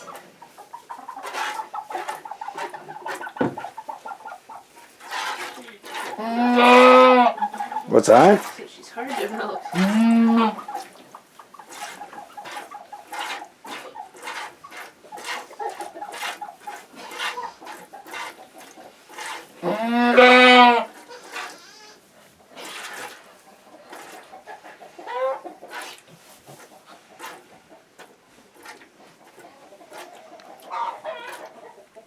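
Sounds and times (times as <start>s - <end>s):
milk squirting into pail: 4.9s - 11.0s, 11.6s - 21.6s, 22.5s - 23.3s, 23.9s - 24.3s, 25.6s - 31.6s
goat calling: 6.0s - 8.2s, 9.4s - 10.9s, 19.6s - 22.1s.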